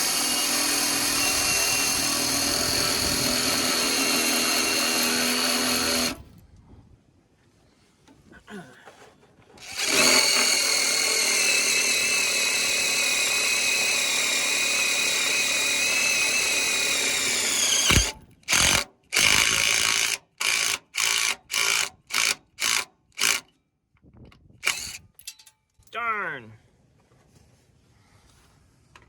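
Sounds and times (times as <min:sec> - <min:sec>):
impact driver driving screw into steel: 0:00.0 - 0:06.2, 0:09.6 - 0:23.5, 0:24.6 - 0:25.1
impact driver trigger bursts: 0:00.0 - 0:06.2, 0:09.6 - 0:23.4, 0:24.6 - 0:25.1.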